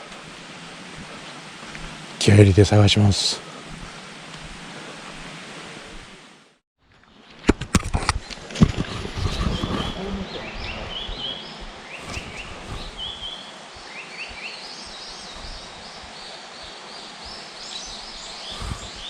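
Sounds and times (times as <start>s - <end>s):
bird singing whistled notes: 9.4s - 19.0s.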